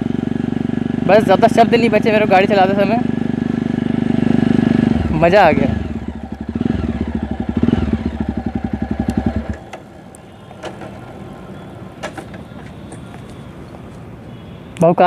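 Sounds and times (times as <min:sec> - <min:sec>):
motorcycle engine thumping: 0:05.7 - 0:11.2, 0:11.9 - 0:13.5.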